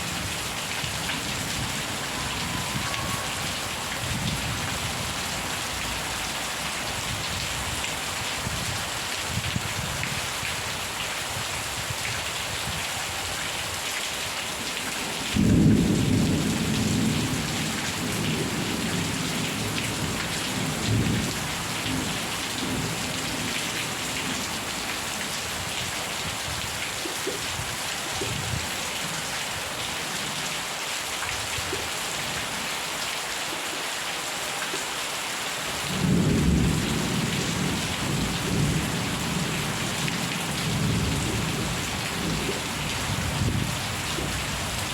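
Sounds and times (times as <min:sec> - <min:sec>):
heavy rain hissing: 0:00.0 - 0:09.4, 0:34.4 - 0:44.9.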